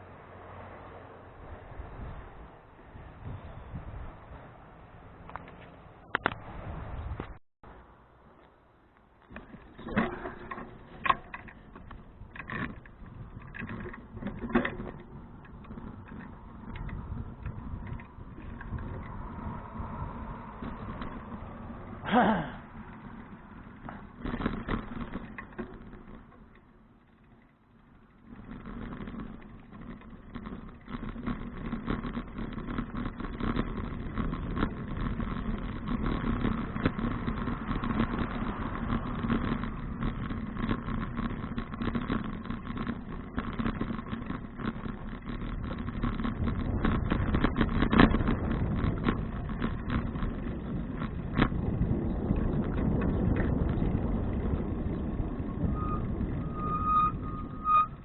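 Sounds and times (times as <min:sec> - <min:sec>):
road vehicle rumble: 0:00.0 - 0:58.0.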